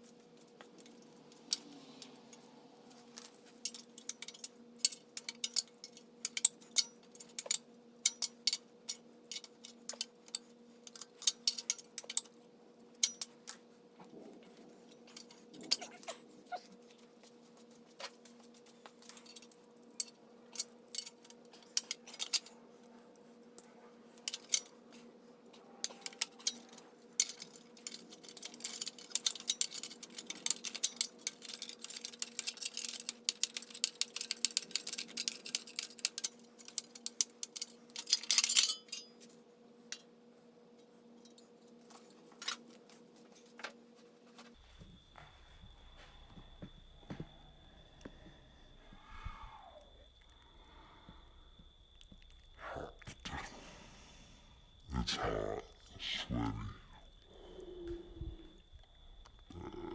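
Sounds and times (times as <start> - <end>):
faint steady hum: 0.0 - 59.9
metallic clinks of hand tools: 3.0 - 12.4, 13.0 - 13.6, 18.8 - 22.6, 23.5 - 40.1.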